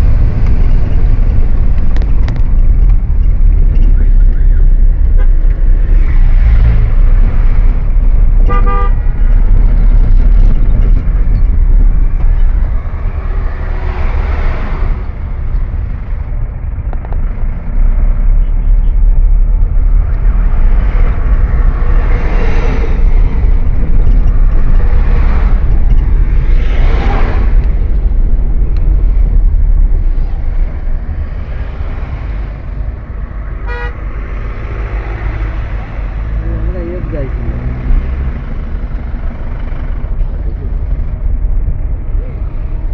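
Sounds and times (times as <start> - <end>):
road travel rumble: 0.0 - 42.9
wind buffeting microphone: 0.0 - 42.9
vehicle horn honk: 8.5 - 9.0, 33.6 - 34.0.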